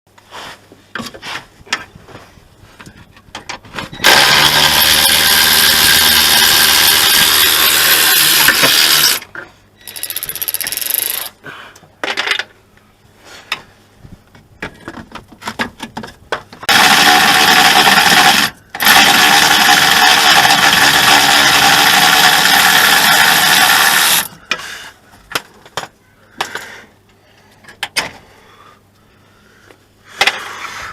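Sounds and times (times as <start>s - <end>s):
hand tools clicking and knocking: 2.8s - 11.4s
power tool running: 4.0s - 9.2s, 16.7s - 24.4s.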